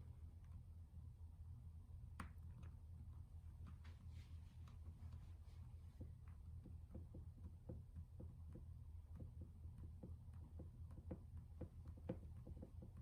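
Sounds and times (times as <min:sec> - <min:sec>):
steady low hum: 0:00.0 - 0:13.0
small clicks and taps: 0:02.1 - 0:02.8, 0:05.9 - 0:13.0.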